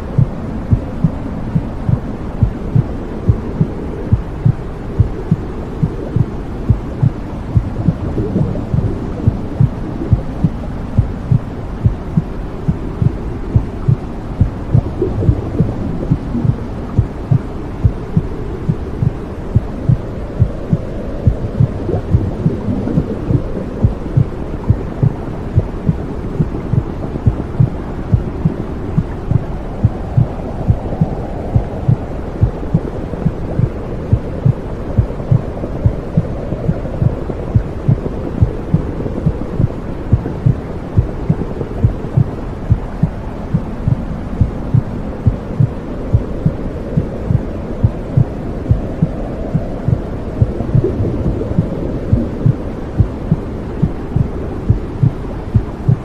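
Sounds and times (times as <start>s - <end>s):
low whooshing hum: 0.0s - 56.0s
heartbeat thumps: 0.1s - 56.0s.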